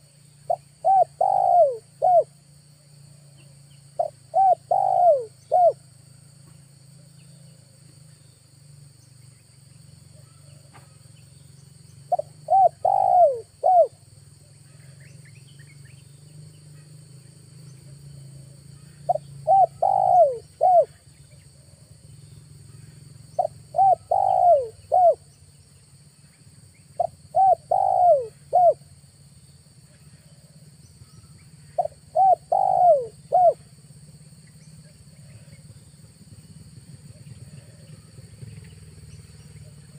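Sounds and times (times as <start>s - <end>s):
dove cooing: 0.0s - 2.4s, 4.0s - 5.8s, 12.1s - 14.0s, 18.8s - 21.0s, 23.4s - 25.3s, 27.0s - 28.8s, 31.6s - 33.7s, 36.8s - 38.6s.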